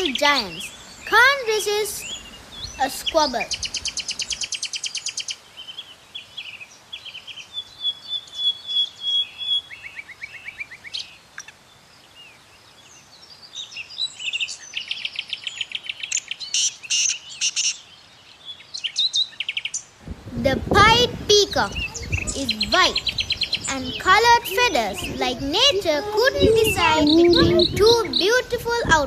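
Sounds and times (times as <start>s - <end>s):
birds chattering: 0.0s - 11.6s, 12.8s - 29.0s
birds chirping and calling: 0.0s - 12.2s, 12.8s - 29.0s
bird whistle: 7.8s - 9.8s.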